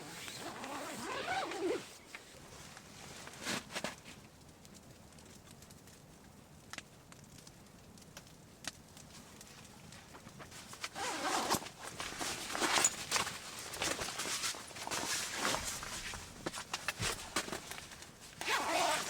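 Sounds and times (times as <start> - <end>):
footsteps crunching in snow: 10.5 - 19.0.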